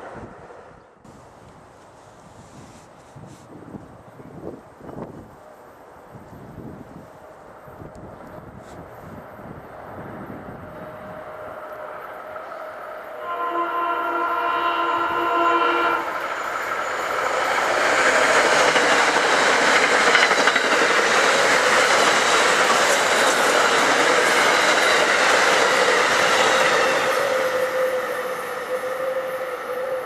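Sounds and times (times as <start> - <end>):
train horn chord: 11.7 - 16.2
train wheels clattering on rails: 16.2 - 27.6.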